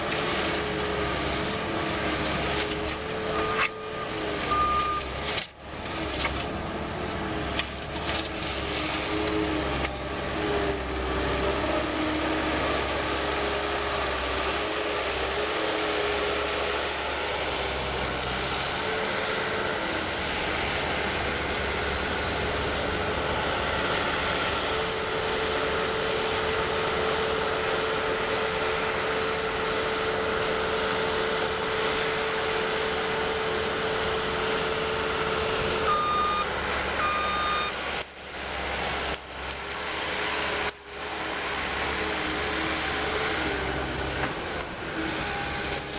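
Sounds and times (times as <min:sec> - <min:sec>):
loader engine drone with whine: 0:00.0 - 0:45.9
backup alarm beeps: 0:04.5 - 0:05.1, 0:35.9 - 0:37.8.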